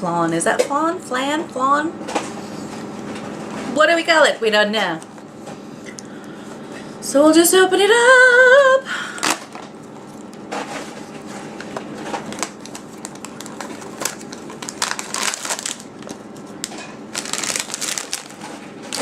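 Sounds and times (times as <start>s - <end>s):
packaging crinkling: 9.2s - 19.0s.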